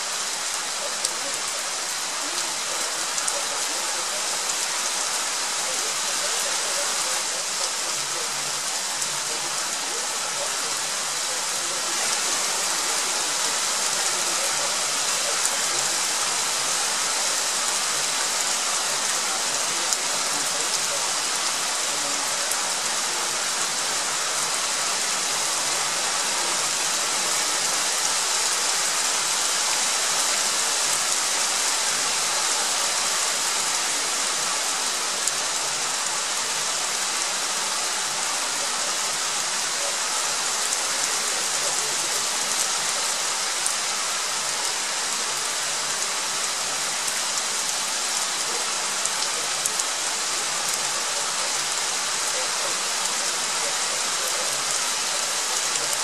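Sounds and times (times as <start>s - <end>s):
rain falling steadily: 0.0s - 56.0s
raindrop ticks: 47.0s - 50.0s.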